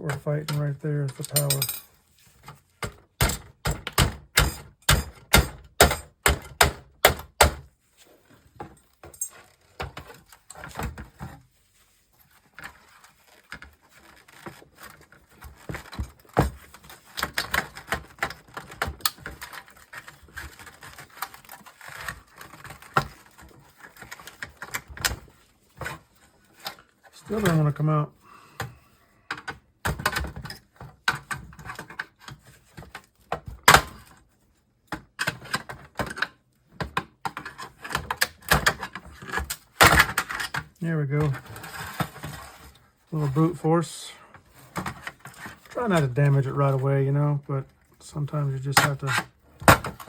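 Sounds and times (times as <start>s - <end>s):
plastic and metal parts rattling: 0.1s - 6.1s, 12.2s - 27.6s, 34.9s - 43.1s, 44.4s - 46.4s.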